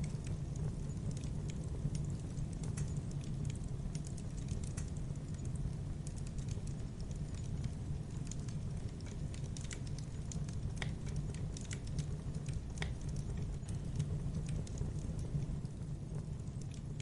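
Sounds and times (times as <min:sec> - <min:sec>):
campfire flames rumbling: 0:00.0 - 0:17.0
fire crackling and popping: 0:00.0 - 0:17.0
sharp wood snaps: 0:06.0 - 0:13.8.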